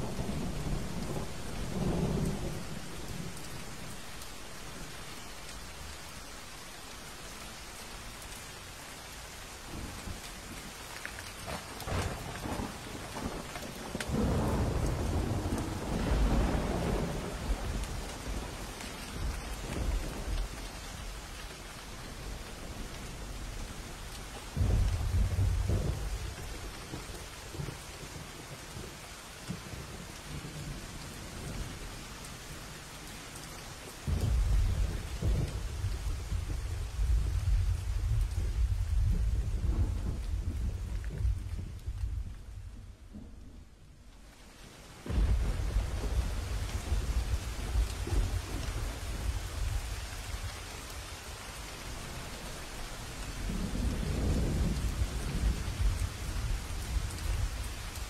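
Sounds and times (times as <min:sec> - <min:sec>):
heavy rain hissing: 0:00.0 - 0:43.0, 0:44.1 - 0:58.0
thunder rolling: 0:11.4 - 0:20.4, 0:24.5 - 0:27.7, 0:34.1 - 0:43.9, 0:45.0 - 0:50.6
loud thunder clap: 0:45.1 - 0:49.8.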